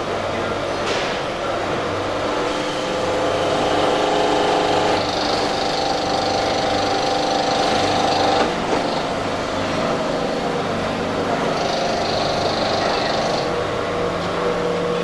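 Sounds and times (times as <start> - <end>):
forging machine whining: 2.1 - 9.2.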